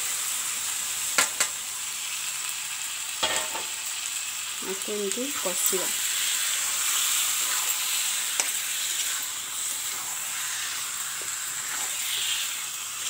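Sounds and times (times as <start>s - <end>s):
food sizzling in a pan: 0.0s - 13.0s
metal spatula stirring and scraping: 6.1s - 13.0s.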